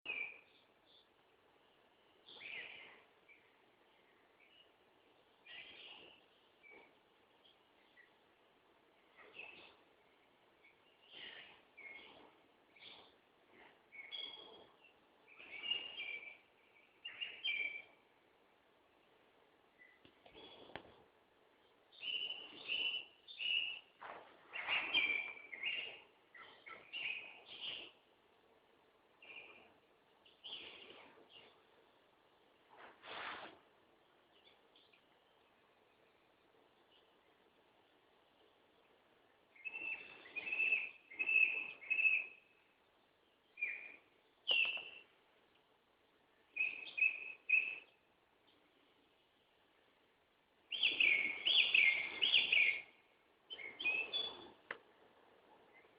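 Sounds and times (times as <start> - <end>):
songbirds chirping: 0.0 - 55.9.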